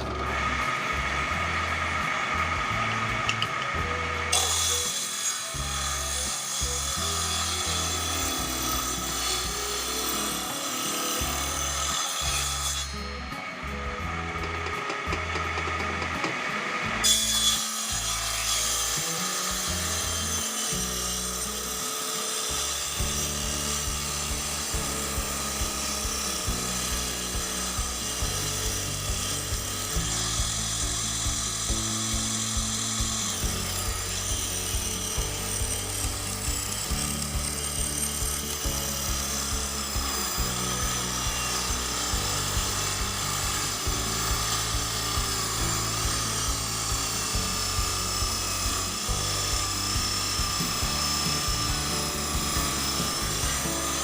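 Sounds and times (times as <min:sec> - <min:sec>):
table saw ripping wood: 0:00.0 - 0:54.0.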